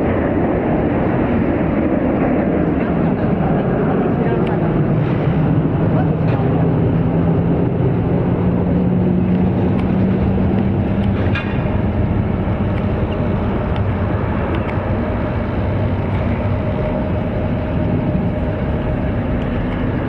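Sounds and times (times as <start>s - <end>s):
jet engines humming: 0.0s - 20.0s.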